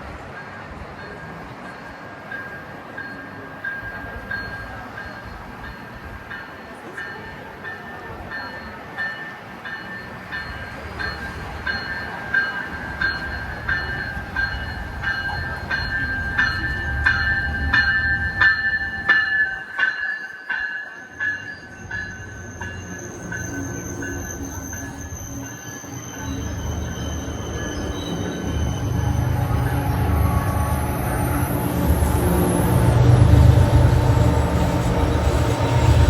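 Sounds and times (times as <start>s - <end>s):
train rolling on track: 0.0s - 36.0s
high-pitched wheel squeal: 22.1s - 36.0s.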